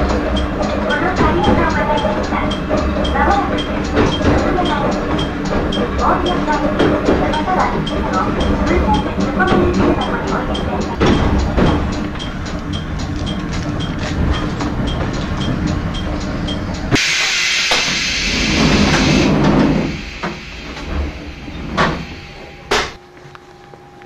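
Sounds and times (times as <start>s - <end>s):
level-crossing bell dinging: 0.0s - 16.9s
electric railcar rumbling: 0.0s - 24.0s
steady hum: 0.0s - 24.0s
sharp knocks: 8.4s - 12.4s
train door sliding open: 16.8s - 23.0s.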